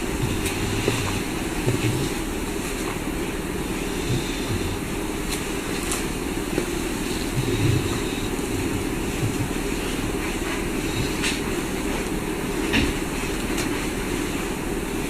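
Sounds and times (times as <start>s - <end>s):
soft low thumps: 0.0s - 2.6s, 5.6s - 11.2s
low rumble of room noise: 0.0s - 15.0s.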